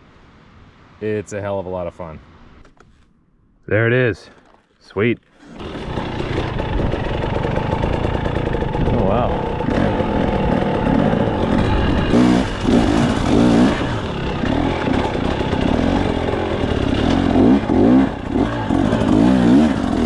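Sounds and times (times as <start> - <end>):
dirt bike engine revving: 5.4 - 20.0
wind rush and riding noise: 5.5 - 17.0.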